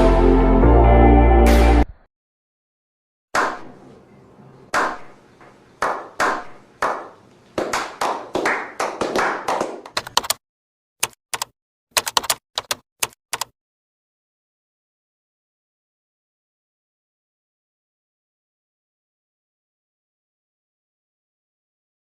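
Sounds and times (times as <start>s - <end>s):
quick clicks: 10.0s - 10.4s, 11.0s - 13.5s.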